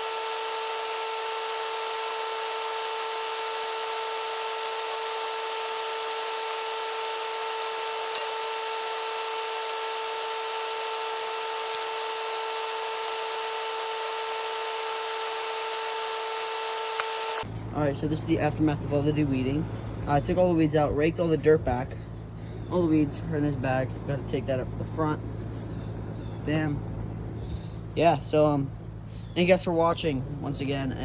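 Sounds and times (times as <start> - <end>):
power tool motor whine: 0.0 - 23.5.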